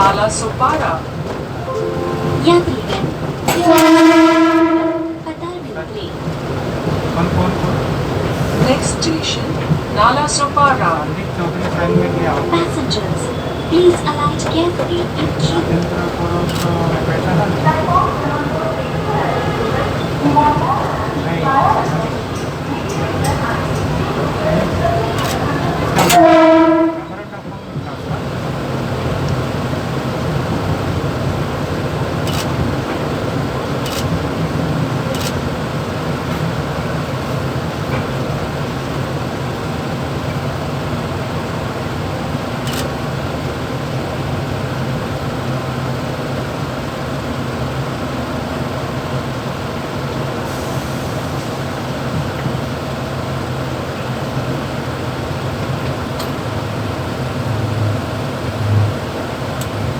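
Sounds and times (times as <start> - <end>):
train cab rumble and hum: 0.0 - 59.9
sharp clicks and rattles: 32.2 - 32.6, 33.8 - 34.2.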